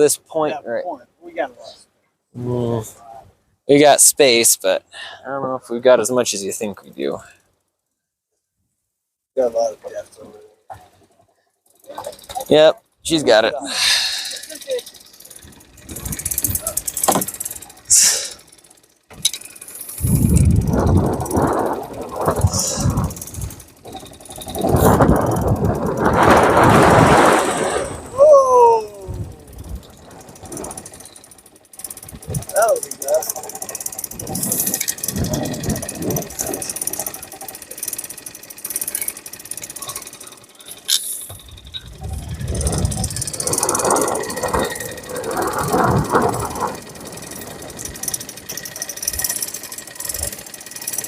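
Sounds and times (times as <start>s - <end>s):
boat motor running: 9.5s - 51.0s
fishing reel clicking rapidly: 13.9s - 28.1s, 28.8s - 51.0s
wind buffeting microphone: 15.5s - 16.9s, 20.0s - 31.0s, 32.0s - 33.3s, 34.0s - 36.9s, 41.3s - 49.3s.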